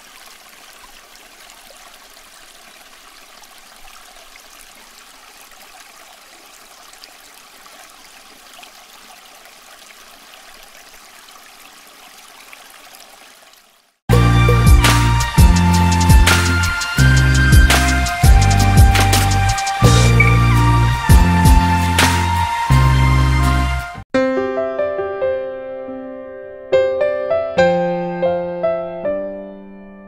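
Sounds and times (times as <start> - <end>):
fountain water trickling and splashing: 0.0 - 14.0.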